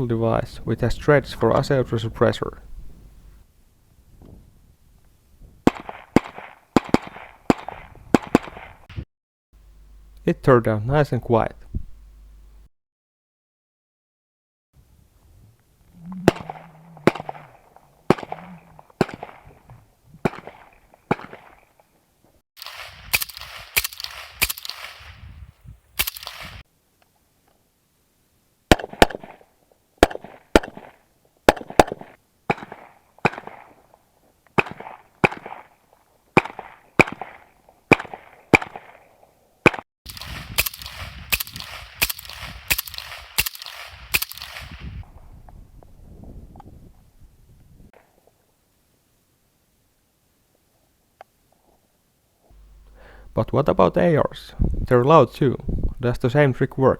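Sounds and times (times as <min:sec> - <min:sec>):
suppressed rifle shots: 0:05.7 - 0:09.0, 0:16.2 - 0:19.6, 0:20.2 - 0:21.6, 0:22.6 - 0:25.2, 0:26.0 - 0:26.6, 0:28.7 - 0:29.4, 0:30.0 - 0:33.7, 0:36.4 - 0:44.9.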